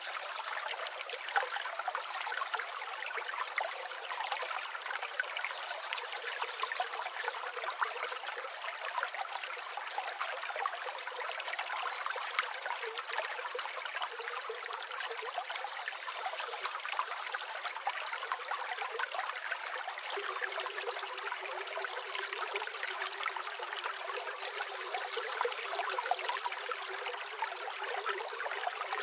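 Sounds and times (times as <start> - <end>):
river water flowing: 0.0 - 29.0.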